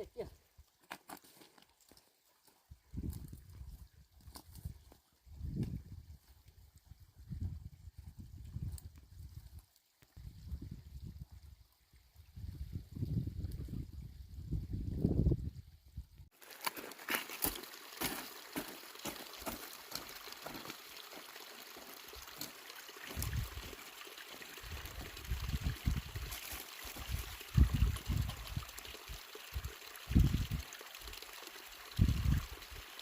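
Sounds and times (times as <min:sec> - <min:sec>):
water running and trickling: 0:16.3 - 0:33.0.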